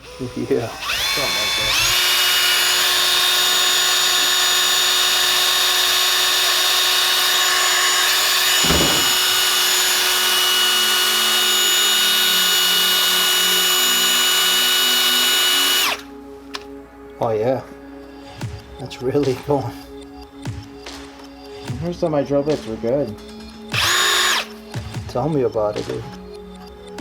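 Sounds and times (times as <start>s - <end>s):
power tool whining: 0.0s - 16.7s, 23.7s - 24.6s.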